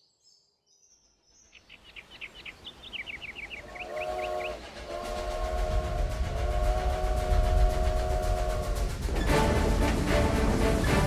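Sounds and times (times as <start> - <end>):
birds chirping: 1.5 - 8.9
train rumbling: 2.0 - 11.0
train whistle: 3.6 - 11.0.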